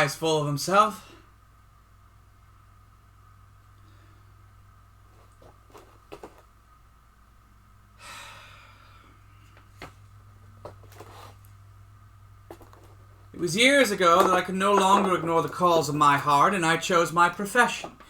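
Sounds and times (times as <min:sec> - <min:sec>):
steady low hum: 0:00.0 - 0:18.0
breathy exhale: 0:08.0 - 0:09.4.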